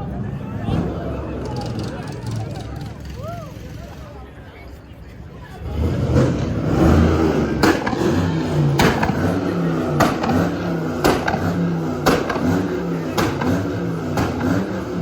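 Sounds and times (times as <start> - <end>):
car engine revving: 5.5 - 15.0
sharp crack: 7.5 - 15.0.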